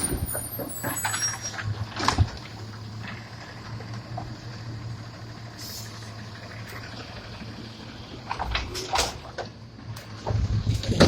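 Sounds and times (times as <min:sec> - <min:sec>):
garbage truck humming: 0:00.0 - 0:11.0.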